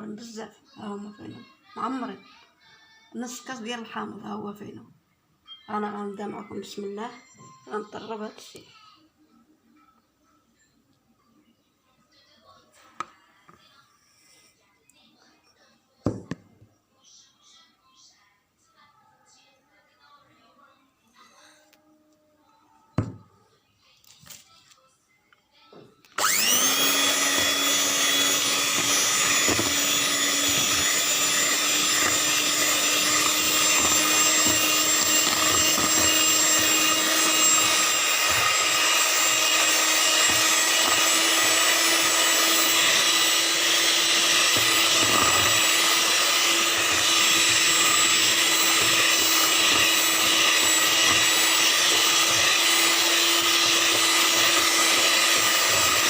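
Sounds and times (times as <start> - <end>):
electric kitchen mixer running: 26.2 - 56.0.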